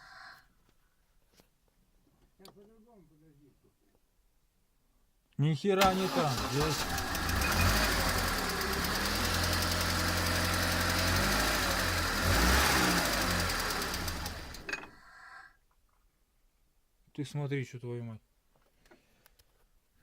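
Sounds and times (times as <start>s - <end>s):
petrol engine running: 5.8s - 14.7s
engine knock or ringing: 6.8s - 14.7s.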